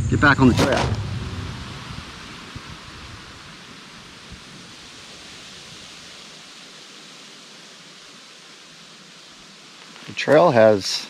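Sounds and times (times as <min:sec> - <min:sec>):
outdoor ambience hiss: 0:00.0 - 0:11.0
faint low thump: 0:00.5 - 0:02.0.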